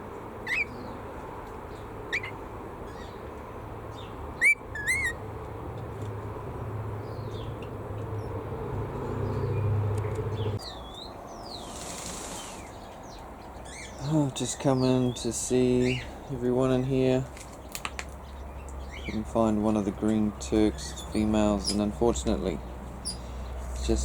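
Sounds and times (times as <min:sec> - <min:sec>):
birds chirping and calling: 0:00.0 - 0:05.3, 0:07.0 - 0:24.0
low rumble: 0:23.8 - 0:24.0.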